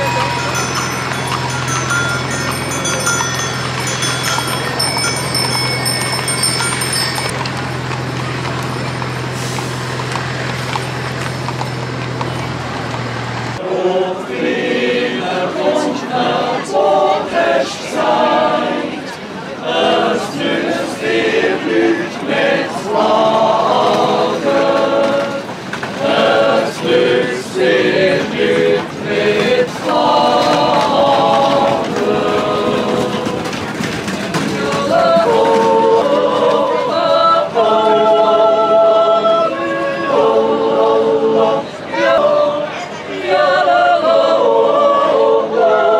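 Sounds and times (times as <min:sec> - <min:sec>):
choir yodelling in harmony: 0:00.0 - 0:04.9, 0:13.6 - 0:45.9.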